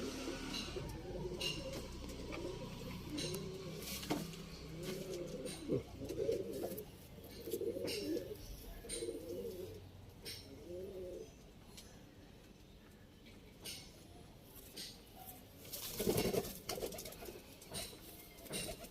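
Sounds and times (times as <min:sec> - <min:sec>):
pigeons cooing: 0:00.0 - 0:11.4, 0:15.8 - 0:18.9.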